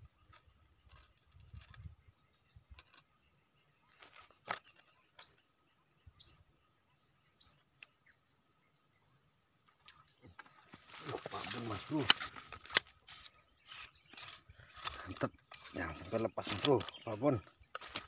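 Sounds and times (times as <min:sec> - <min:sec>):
bird chirps sweeping downward: 0:06.1 - 0:06.5, 0:07.4 - 0:08.2.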